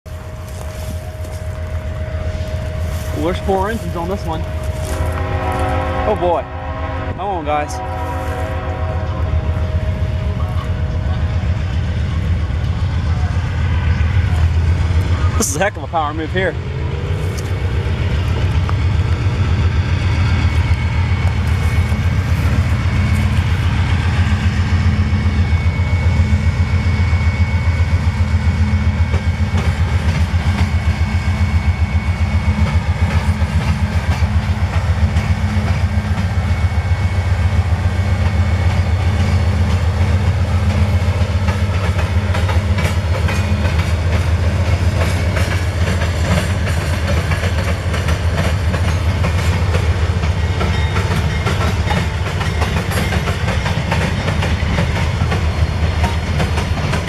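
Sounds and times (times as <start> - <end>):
freight train rumbling past: 0.1 - 57.0
wheels clacking over rail joints: 38.0 - 57.0.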